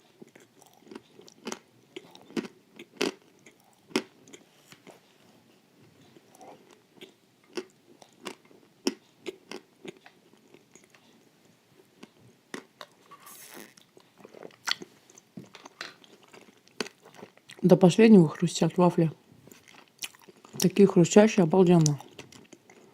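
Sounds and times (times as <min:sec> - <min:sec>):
soft chewing: 0:00.0 - 0:17.6, 0:19.4 - 0:20.8, 0:21.8 - 0:22.9
crunching wafers: 0:00.4 - 0:04.8.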